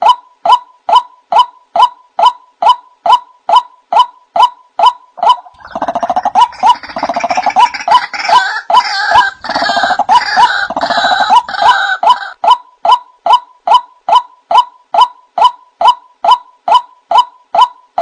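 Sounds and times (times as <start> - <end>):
harsh rapid pulsing bird calls: 3.5 - 12.4
waterhen wak calls: 5.2 - 12.4.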